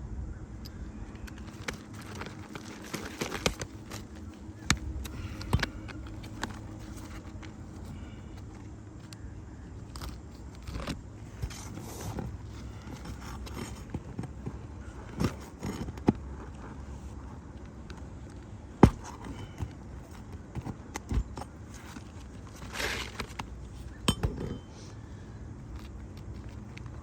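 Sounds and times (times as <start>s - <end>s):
steady low rumble: 0.0s - 20.9s.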